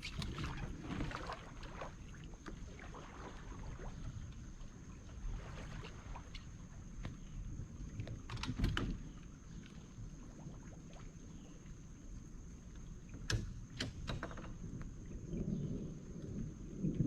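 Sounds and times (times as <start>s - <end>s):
low rumble of water and wind: 0.0s - 17.0s
boat gear clicking and knocking: 8.0s - 9.2s, 13.1s - 14.9s.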